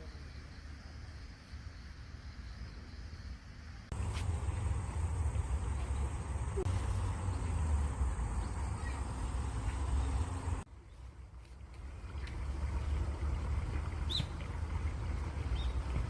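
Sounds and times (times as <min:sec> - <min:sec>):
stream water running: 0:03.9 - 0:16.0
faint bird chirps: 0:08.3 - 0:11.0.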